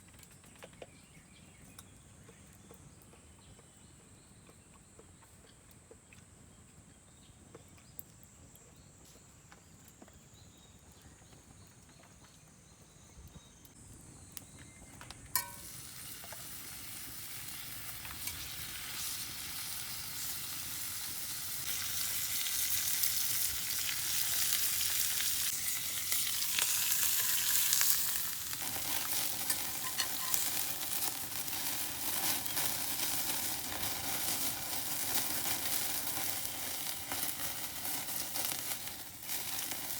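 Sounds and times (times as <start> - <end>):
food sizzling in a hot pan: 15.4 - 39.9.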